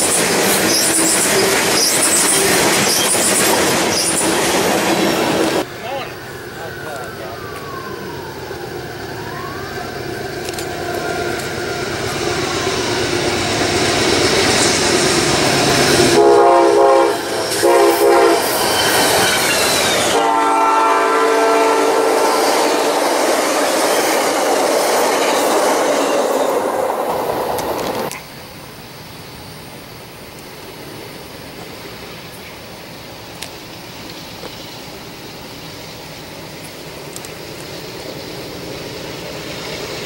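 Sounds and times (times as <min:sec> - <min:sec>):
passenger train passing: 0:00.0 - 0:40.0
train cars rolling past: 0:00.0 - 0:40.0
train horn blasts: 0:16.0 - 0:18.6, 0:19.9 - 0:23.1.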